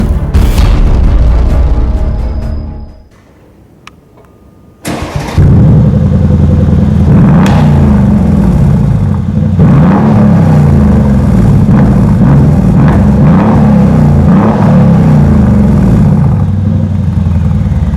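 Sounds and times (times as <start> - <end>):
car engine revving: 5.0 - 17.9.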